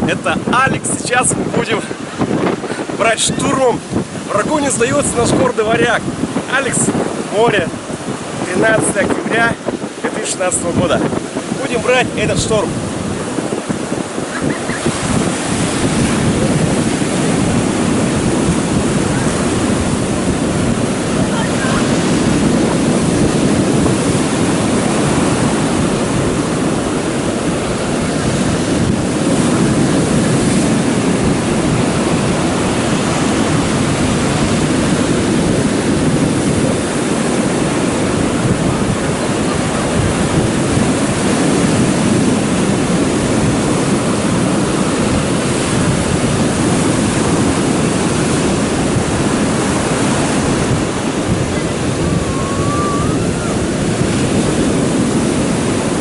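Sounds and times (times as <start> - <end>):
surf breaking: 0.0 - 56.0
wind buffeting microphone: 0.0 - 56.0.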